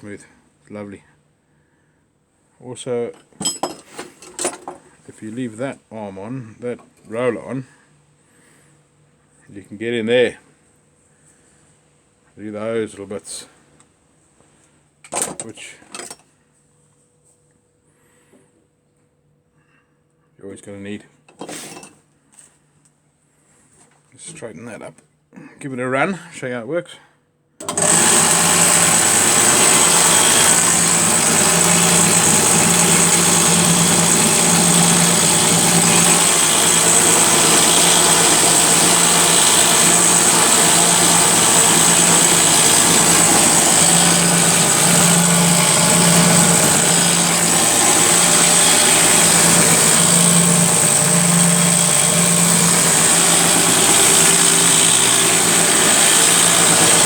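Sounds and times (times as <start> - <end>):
abrasive belt hissing over rollers: 27.6 - 57.0
motor humming: 27.6 - 57.0.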